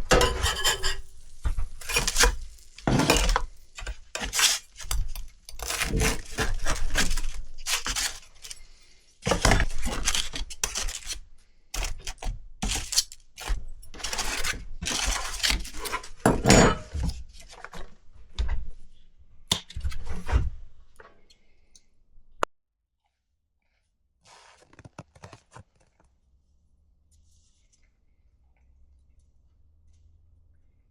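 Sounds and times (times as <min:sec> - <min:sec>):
pots and pans clattering: 0:00.0 - 0:04.4, 0:16.2 - 0:17.1.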